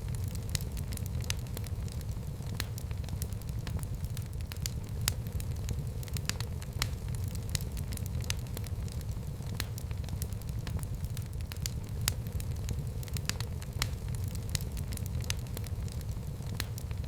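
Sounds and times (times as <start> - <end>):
fire low rumble: 0.0 - 17.0
wood fire crackling and popping: 0.0 - 17.0.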